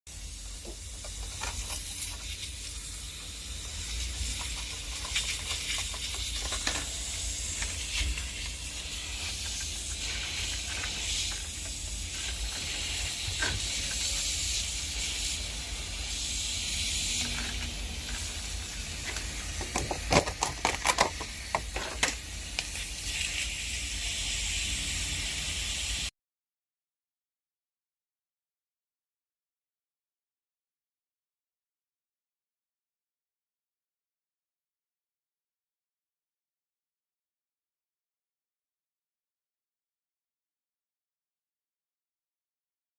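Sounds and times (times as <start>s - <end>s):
pressurised water hissing: 0.1s - 26.1s.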